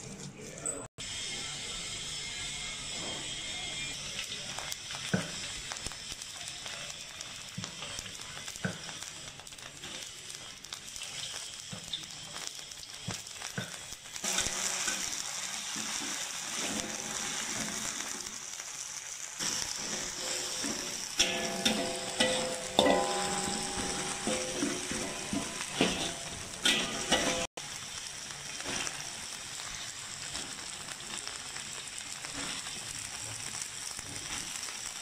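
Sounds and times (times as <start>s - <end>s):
paste sizzling in hot oil: 1.0s - 35.0s
metal spatula stirring: 19.4s - 27.5s.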